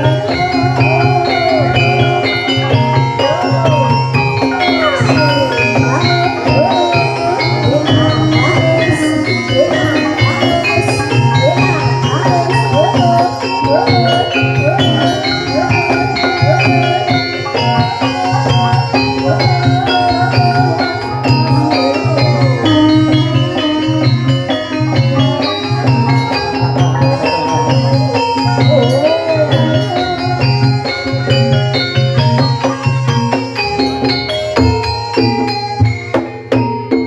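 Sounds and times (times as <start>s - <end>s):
person singing: 0.0s - 34.9s
gamelan ensemble playing: 0.0s - 37.0s.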